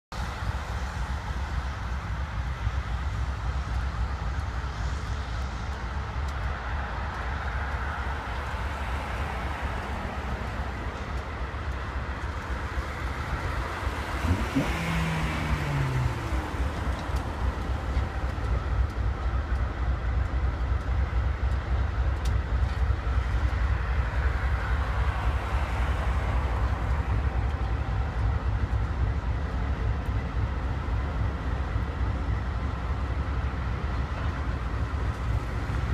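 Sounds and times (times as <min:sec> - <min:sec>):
freight train passing: 0:00.1 - 0:35.9
road traffic: 0:00.1 - 0:35.9.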